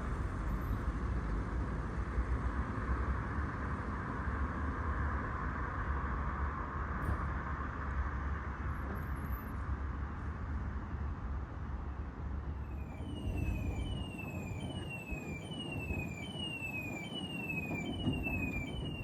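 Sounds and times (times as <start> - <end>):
tram rumbling on rails: 10.2 - 19.0.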